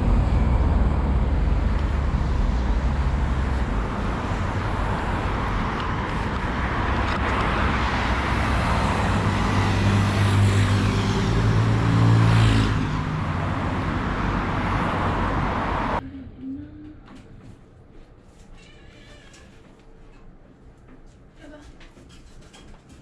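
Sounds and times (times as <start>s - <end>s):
road traffic: 0.0s - 16.0s
vehicle engine passing: 0.0s - 16.0s.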